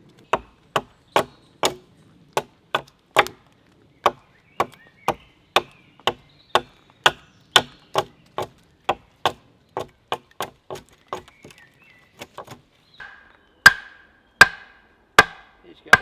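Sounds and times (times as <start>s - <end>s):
tool striking wood: 0.3s - 1.8s, 2.4s - 3.4s, 12.2s - 16.0s.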